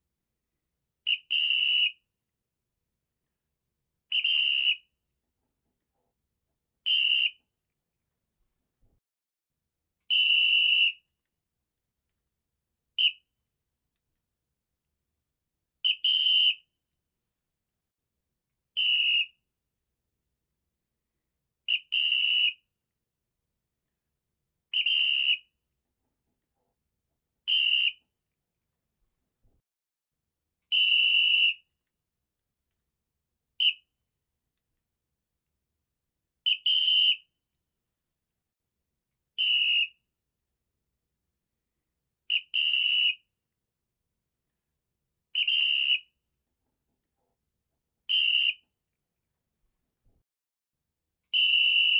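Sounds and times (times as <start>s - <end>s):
high-pitched whistling squeaks: 4.2s - 4.9s.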